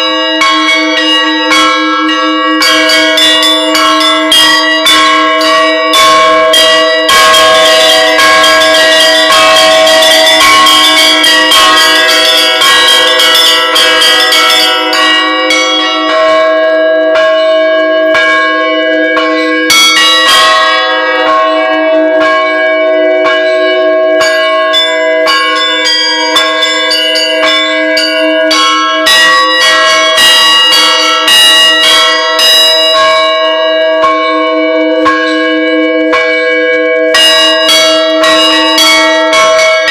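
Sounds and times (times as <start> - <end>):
bells ringing: 0.0 - 39.9.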